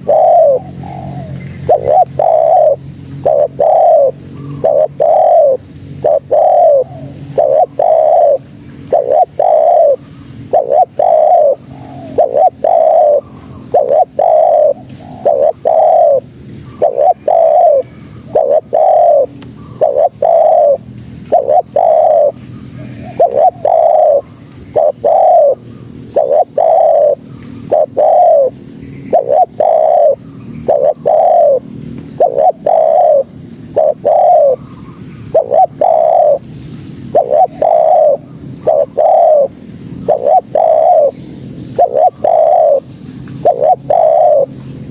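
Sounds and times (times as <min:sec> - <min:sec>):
dove cooing: 0:00.0 - 0:44.9.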